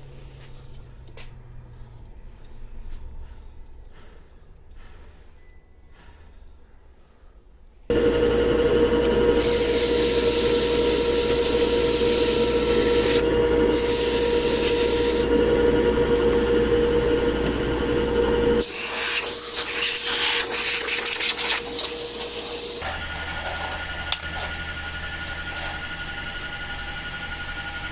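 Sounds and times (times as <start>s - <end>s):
power tool humming: 7.9s - 27.9s.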